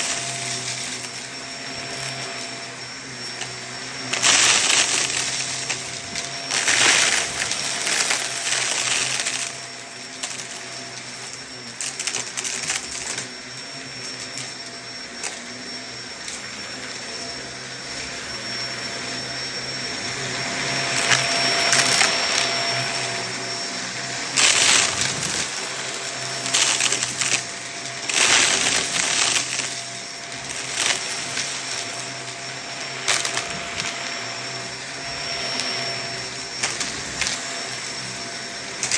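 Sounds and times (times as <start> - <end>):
vacuum cleaner motor hum: 0.0 - 38.9
debris rattling through vacuum: 3.4 - 13.3, 24.4 - 38.9.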